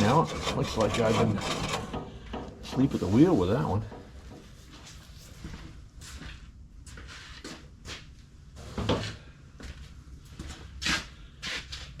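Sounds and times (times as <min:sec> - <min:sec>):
knocks and clunks of tractor parts: 0:00.3 - 0:03.0.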